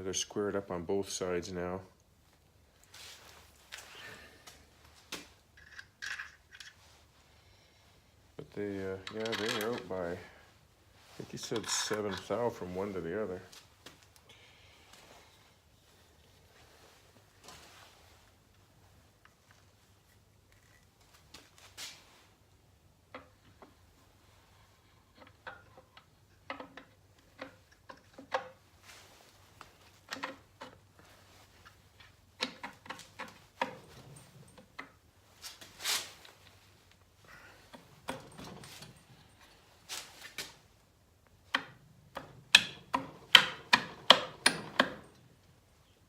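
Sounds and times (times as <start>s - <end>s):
metal parts and tools clinking: 5.5s - 6.8s, 9.0s - 10.1s.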